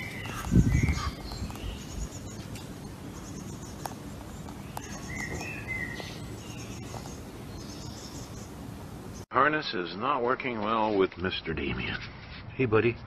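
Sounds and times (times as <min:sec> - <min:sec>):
small birds chirping: 0:00.0 - 0:09.3
low outdoor background noise: 0:00.0 - 0:13.0.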